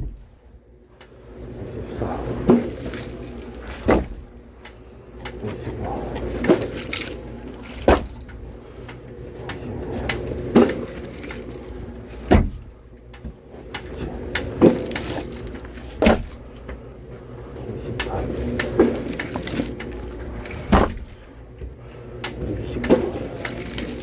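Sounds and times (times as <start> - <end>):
firewood clattering: 2.3 - 16.8, 17.9 - 24.0
wooden knocks of firewood: 2.5 - 5.4, 6.0 - 8.5, 9.5 - 16.8, 18.0 - 24.0.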